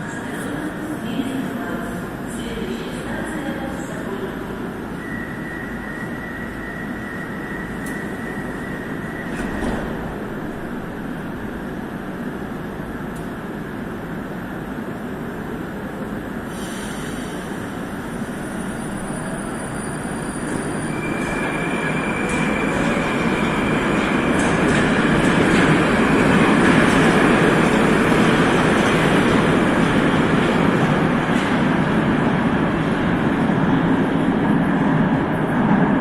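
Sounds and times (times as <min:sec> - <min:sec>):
metro train rumble: 0:00.0 - 0:36.0.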